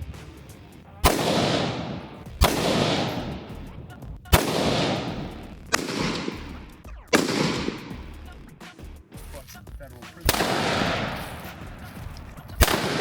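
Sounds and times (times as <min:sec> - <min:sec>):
gunshots with echo: 0:01.0 - 0:08.5, 0:10.3 - 0:13.0.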